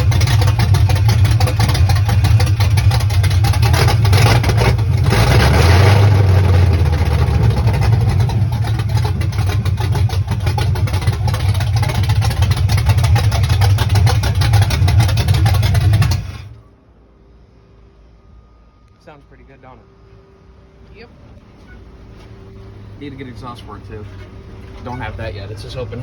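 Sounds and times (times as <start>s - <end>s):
car engine idling loudly: 0.0s - 16.6s.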